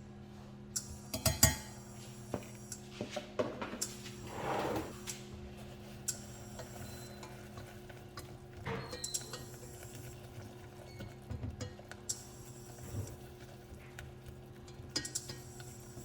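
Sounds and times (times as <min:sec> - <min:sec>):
utensil stirring in a pan: 0:05.4 - 0:16.0.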